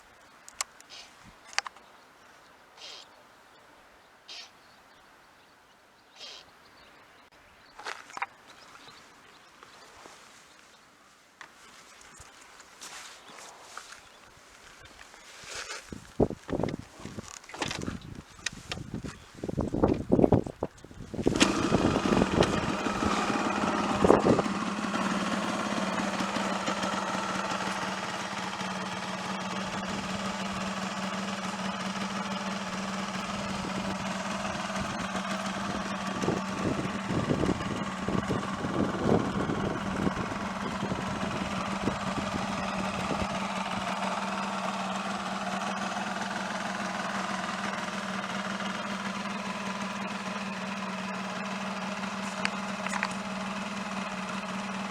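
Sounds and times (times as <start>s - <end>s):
two-stroke motorcycle engine idling: 16.0s - 54.9s.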